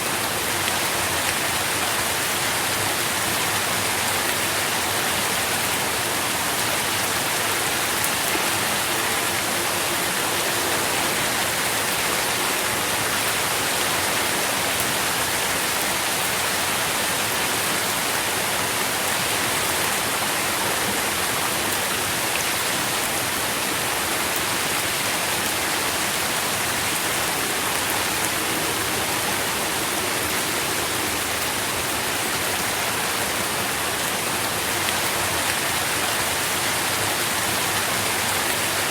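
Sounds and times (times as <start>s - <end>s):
dense rainfall: 0.0s - 38.9s.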